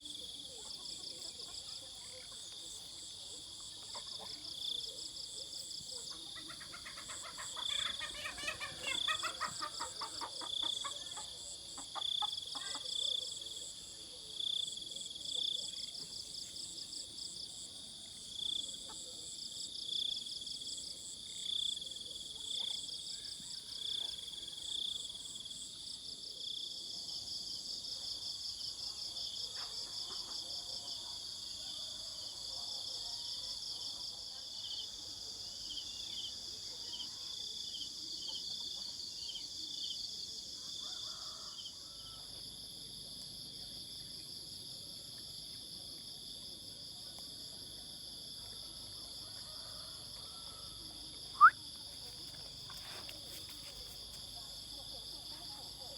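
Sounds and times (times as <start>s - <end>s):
crickets trilling: 51.1s - 54.4s.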